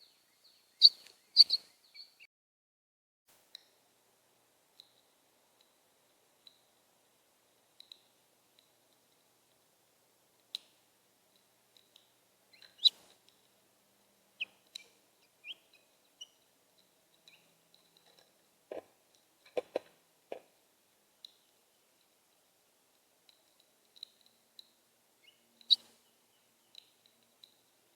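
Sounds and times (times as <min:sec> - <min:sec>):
small birds chirping: 0:00.0 - 0:02.3, 0:10.5 - 0:13.6, 0:14.3 - 0:20.5, 0:23.3 - 0:27.9.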